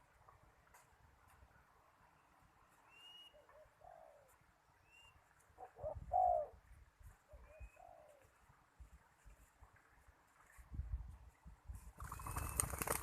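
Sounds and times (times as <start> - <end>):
dove cooing: 3.2 - 4.4, 5.6 - 6.6, 7.3 - 8.3.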